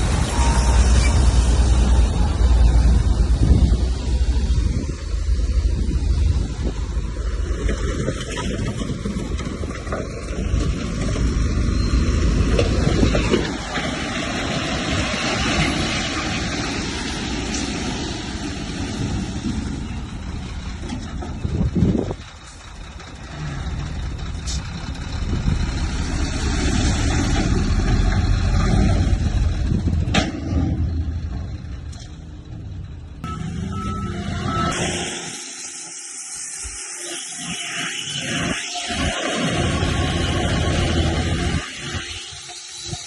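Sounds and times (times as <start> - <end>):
heavy diesel machinery rumbling: 0.0 - 43.0
hiss: 34.8 - 39.6, 41.6 - 43.0.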